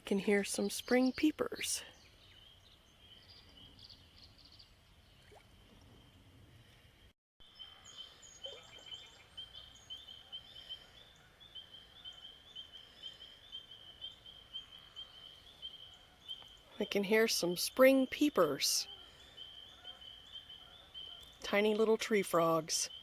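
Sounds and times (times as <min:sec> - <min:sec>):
bird chirps: 0:07.4 - 0:17.2
spring peepers chorus: 0:07.4 - 0:23.0.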